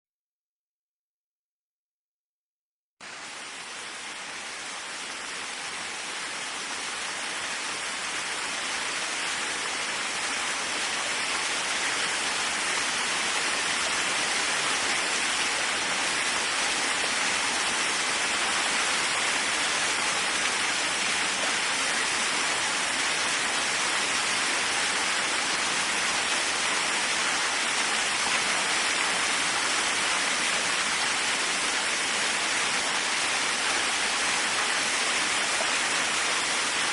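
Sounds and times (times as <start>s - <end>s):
waterfall rushing: 3.0s - 36.9s.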